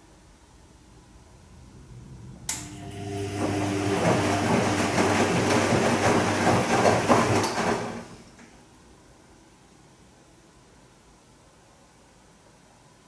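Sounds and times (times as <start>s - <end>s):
washing machine drum churning: 2.6s - 8.4s.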